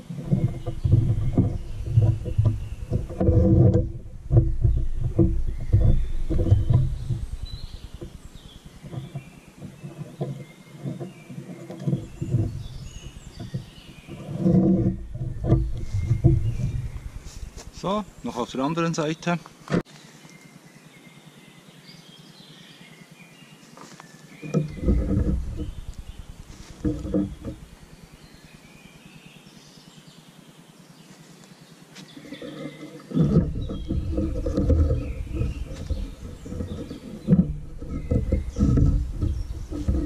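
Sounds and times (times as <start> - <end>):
low rumbling noise: 0.0 - 9.6, 11.8 - 19.0, 24.4 - 29.0, 32.2 - 40.0
small birds chirping: 0.0 - 40.0.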